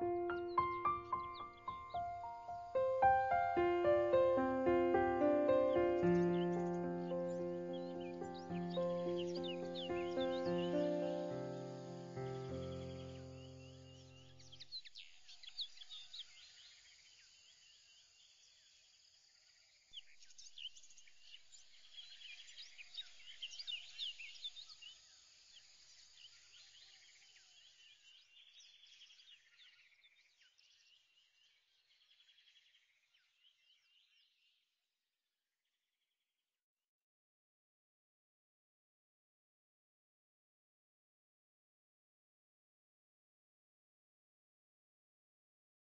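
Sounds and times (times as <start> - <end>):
faint birdsong: 0.0 - 34.7.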